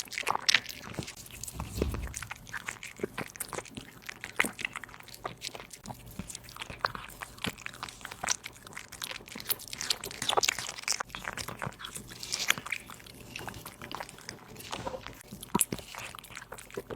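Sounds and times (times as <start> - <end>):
cat chewing meat and bone: 4.3 - 16.9.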